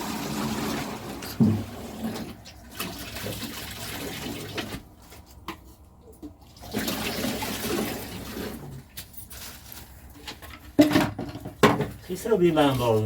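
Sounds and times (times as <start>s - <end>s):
water pouring: 0.0s - 5.0s, 6.4s - 9.0s.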